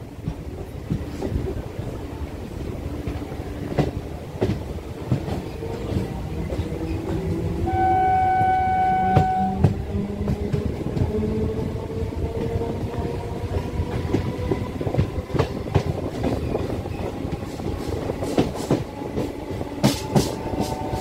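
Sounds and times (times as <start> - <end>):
electric train rumbling on rails: 0.0 - 21.0
train horn: 7.6 - 9.8.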